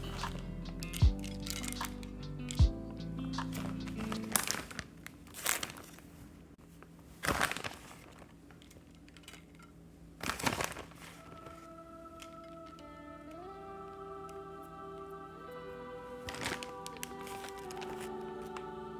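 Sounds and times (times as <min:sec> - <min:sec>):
crinkling rustles: 0:03.4 - 0:12.9, 0:16.2 - 0:18.6.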